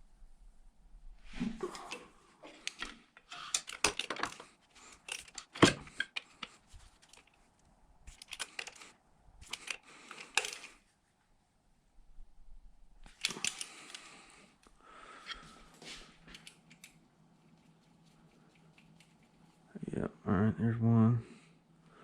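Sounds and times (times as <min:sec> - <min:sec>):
metal tools clinking: 0:02.6 - 0:06.3, 0:09.4 - 0:10.8.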